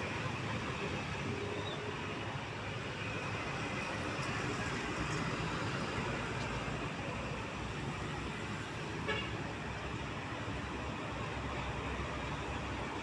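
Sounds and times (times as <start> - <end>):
road noise from passing trucks: 0.0 - 13.0.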